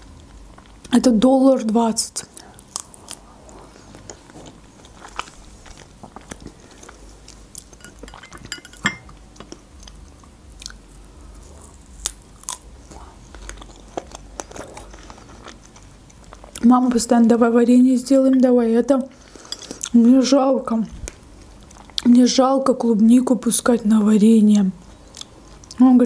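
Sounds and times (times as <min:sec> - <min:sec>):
person chewing strawberries: 0:02.3 - 0:16.6, 0:19.2 - 0:20.0, 0:24.9 - 0:25.8.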